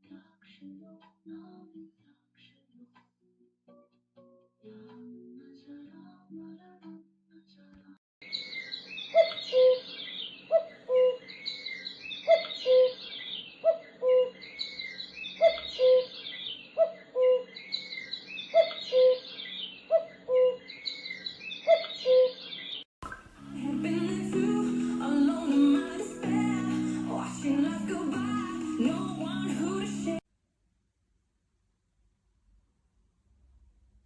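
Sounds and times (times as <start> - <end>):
higher bird chirping: 8.2 - 22.8.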